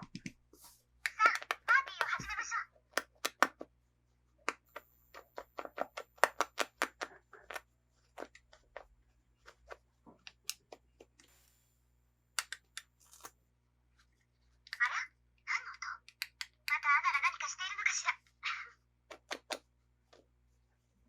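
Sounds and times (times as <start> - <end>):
plastic toy pieces clicking: 1.0 - 2.3.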